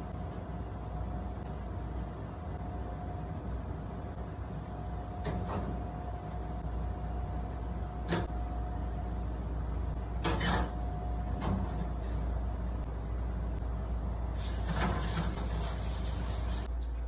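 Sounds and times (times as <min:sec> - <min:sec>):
hiss: 0:14.4 - 0:16.7.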